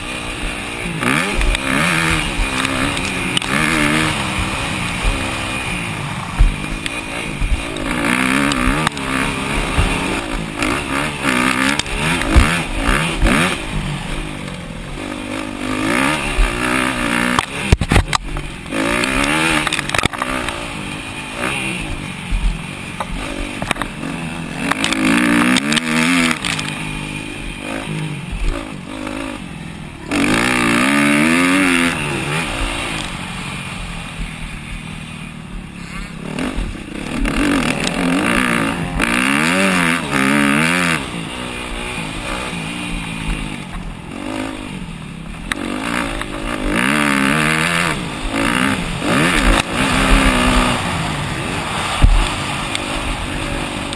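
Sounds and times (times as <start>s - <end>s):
motocross bike engines: 0.0s - 53.9s
sharp knocks and clatter: 17.2s - 20.6s, 22.0s - 24.0s.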